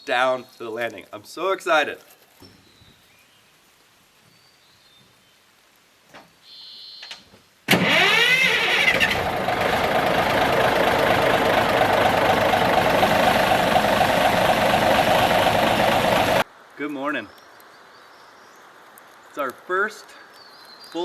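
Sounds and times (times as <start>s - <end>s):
diesel engine starting and running: 7.7s - 16.4s.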